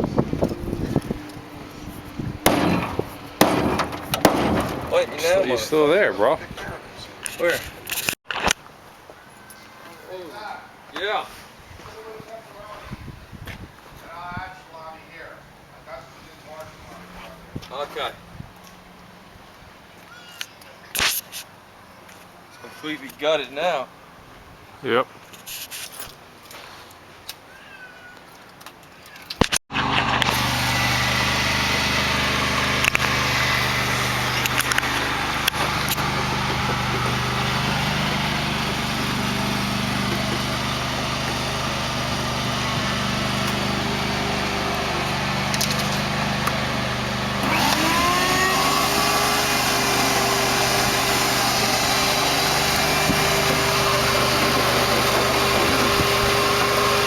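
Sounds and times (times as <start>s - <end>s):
rising whine: 29.7s - 57.0s
small motor running: 29.8s - 57.0s.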